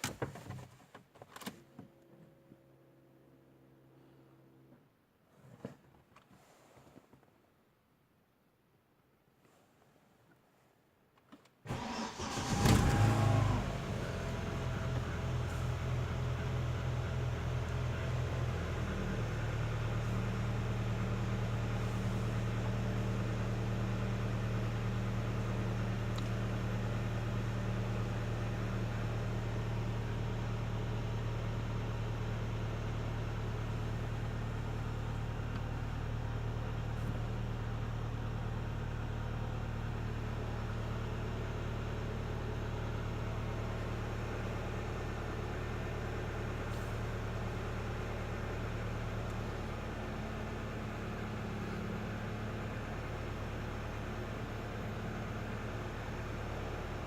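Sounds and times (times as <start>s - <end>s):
car engine idling: 11.7s - 57.0s.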